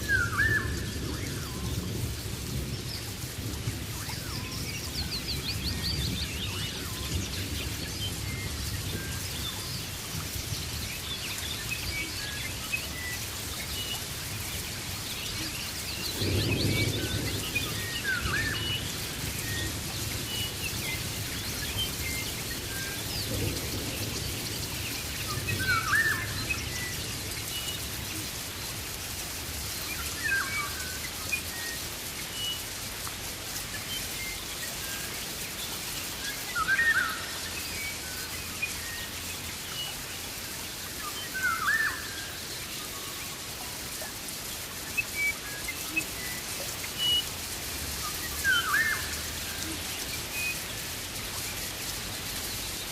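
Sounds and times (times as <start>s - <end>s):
rain hissing: 0.0s - 52.9s.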